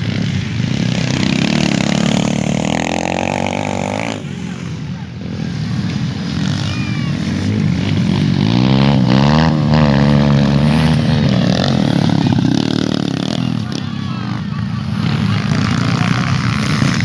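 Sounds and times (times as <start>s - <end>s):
motorcycle engine revving: 0.0s - 17.0s
motorcycle engines droning: 0.0s - 17.0s.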